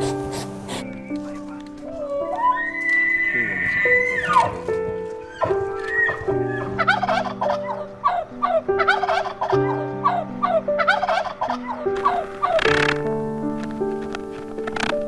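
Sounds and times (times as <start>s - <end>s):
background music with held notes: 0.0s - 15.0s
short falling animal calls: 2.1s - 12.7s.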